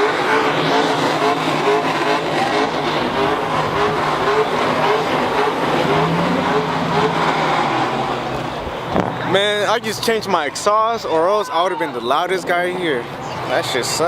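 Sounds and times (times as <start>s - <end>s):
car engine revving in blips: 0.0s - 9.6s
engine idling: 0.0s - 11.0s.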